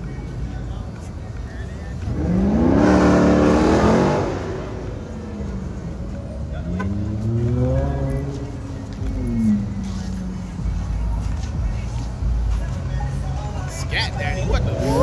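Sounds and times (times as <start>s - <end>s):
car engine accelerating: 1.9s - 11.2s, 14.1s - 15.0s.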